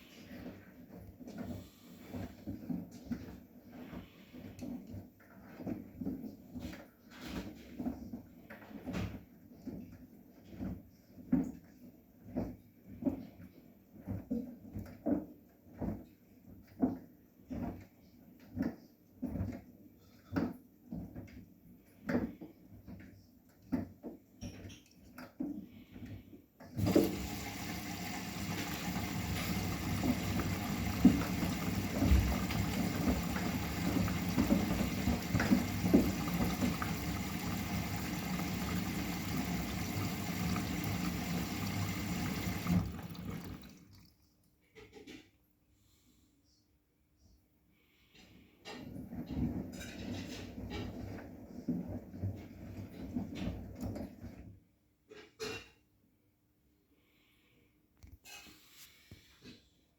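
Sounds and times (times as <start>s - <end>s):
water rushing through machine: 26.8s - 44.1s
washing machine drum sloshing: 26.8s - 44.2s.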